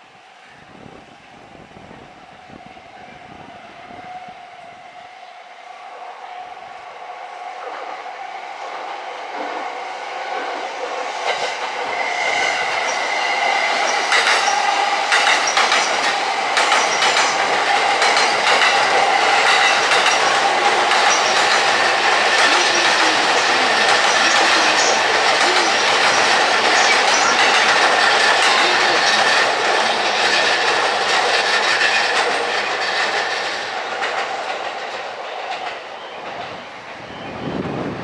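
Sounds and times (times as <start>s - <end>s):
train running: 0.0s - 38.0s
wheels clicking over rail joints: 13.8s - 35.8s.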